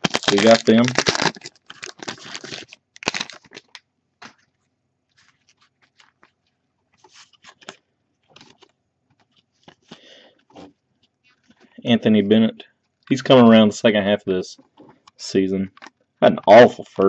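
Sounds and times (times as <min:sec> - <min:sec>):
wrapper crinkling: 0:00.0 - 0:11.6
cards being handled: 0:00.0 - 0:11.7.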